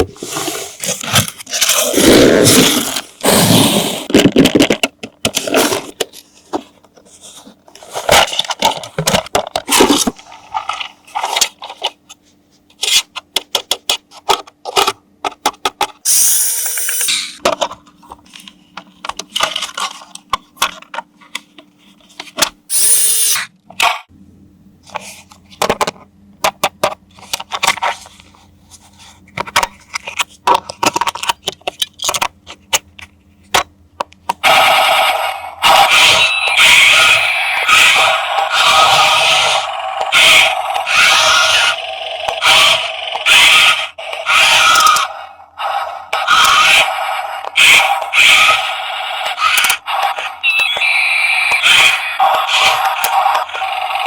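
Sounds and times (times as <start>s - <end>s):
plastic parts clicking and tapping: 4.1s - 7.0s, 12.7s - 16.0s, 29.3s - 34.4s.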